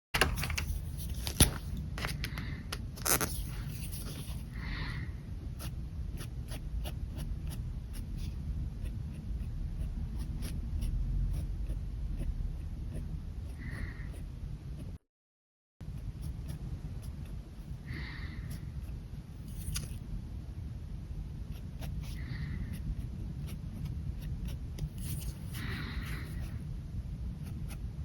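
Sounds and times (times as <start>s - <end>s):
steady low hum: 0.2s - 15.0s, 15.8s - 28.0s
pen scratching on paper: 3.1s - 4.5s, 5.6s - 15.0s, 21.5s - 26.6s, 27.4s - 27.9s.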